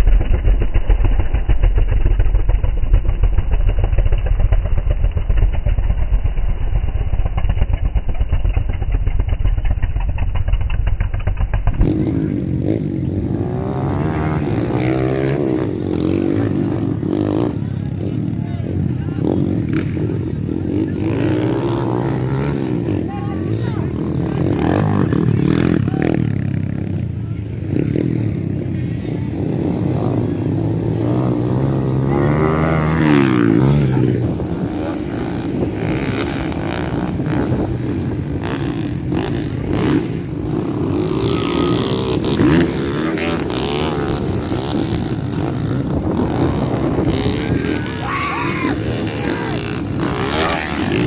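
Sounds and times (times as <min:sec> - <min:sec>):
dirt bike engines revving: 0:11.7 - 0:51.0.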